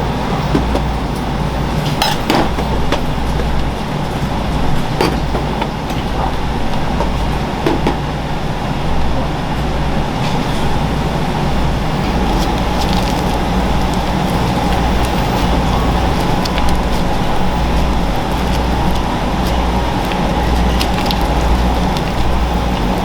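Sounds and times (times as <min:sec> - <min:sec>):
mechanical hum and rushing: 0:10.2 - 0:23.0.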